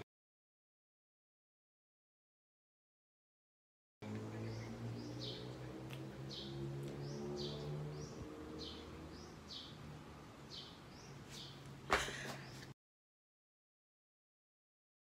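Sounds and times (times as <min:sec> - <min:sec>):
small bird chirping: 0:04.0 - 0:11.8.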